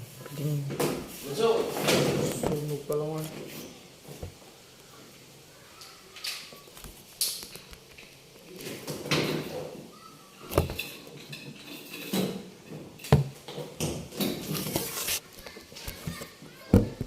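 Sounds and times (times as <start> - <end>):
metal tools clanking and scraping: 10.6 - 13.1.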